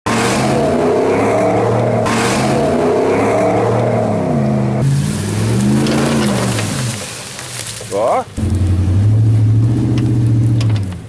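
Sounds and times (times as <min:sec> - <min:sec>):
diesel engine revving: 0:00.0 - 0:11.0.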